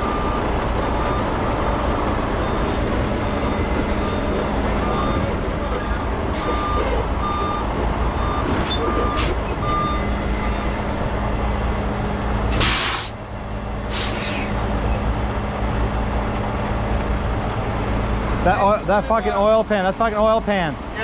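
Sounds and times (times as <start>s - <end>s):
truck diesel engine running: 0.0s - 21.0s
back-up alarm beeping: 2.4s - 10.8s
air hiss: 12.5s - 13.2s, 13.9s - 14.5s.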